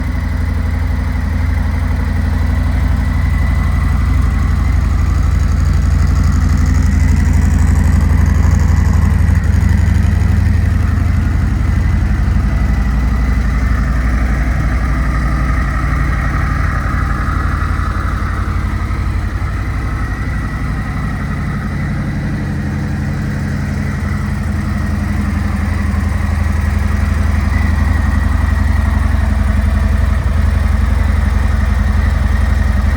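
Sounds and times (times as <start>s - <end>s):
motorcycle engine idling: 0.0s - 32.9s.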